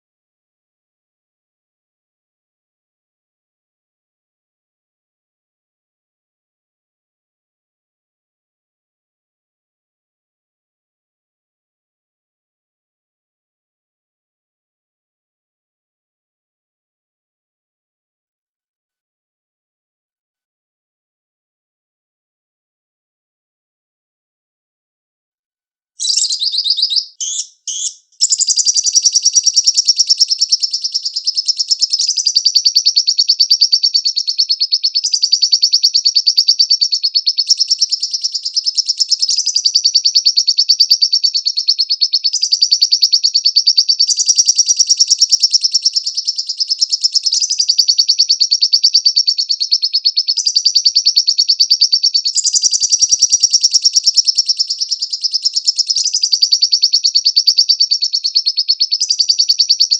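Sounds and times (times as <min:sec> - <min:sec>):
bird short high calls: 0:26.0 - 0:35.3
bird high chattering trill: 0:26.0 - 0:59.9.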